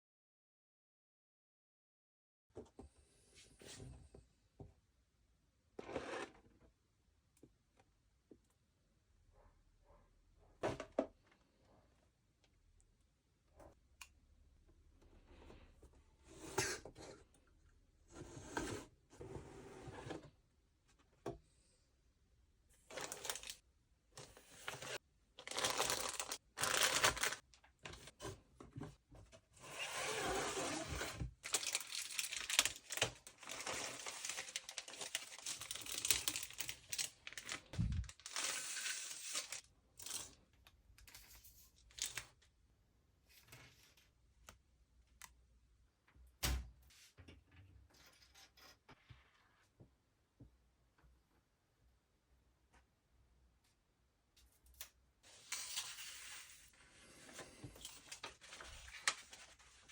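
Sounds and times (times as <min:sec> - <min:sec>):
packaging crinkling and tearing: 0:22.9 - 0:23.6, 0:24.8 - 0:27.5, 0:31.4 - 0:40.3.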